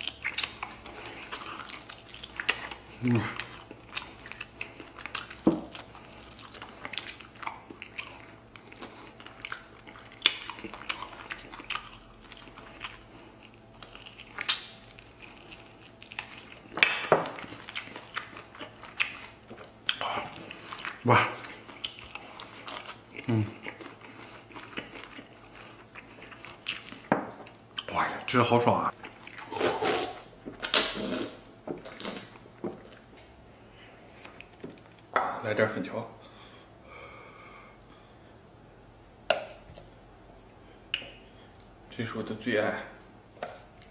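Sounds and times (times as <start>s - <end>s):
person eating with wet mouth sounds: 0.0s - 27.9s, 28.9s - 35.1s
person chewing: 0.0s - 28.3s, 28.9s - 35.2s, 39.3s - 41.8s.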